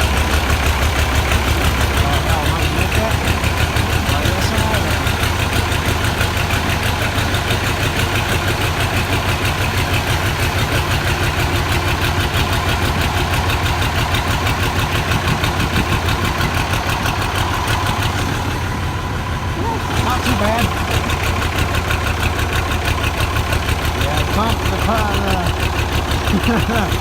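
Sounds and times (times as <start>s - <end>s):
diesel tractor engine idling: 0.0s - 27.0s.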